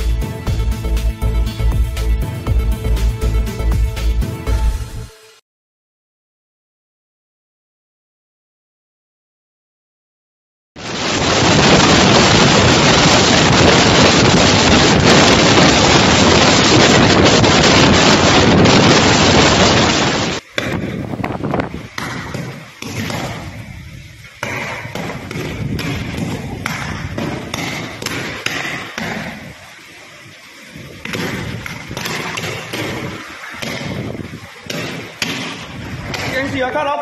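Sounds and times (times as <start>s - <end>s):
wind and heavy rain roaring: 0.0s - 5.4s, 10.8s - 37.0s
knocks and thumps: 20.6s - 23.6s, 24.4s - 29.4s, 31.0s - 36.6s.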